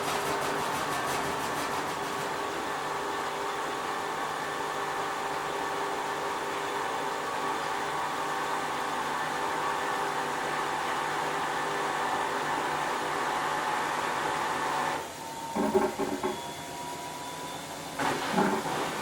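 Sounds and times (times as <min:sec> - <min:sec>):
washing machine motor hum: 0:00.0 - 0:19.0
knocks or rattles: 0:15.6 - 0:16.4.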